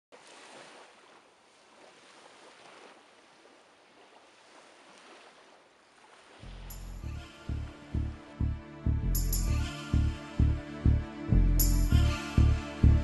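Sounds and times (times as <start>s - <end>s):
faint rushing water: 0.1s - 8.7s.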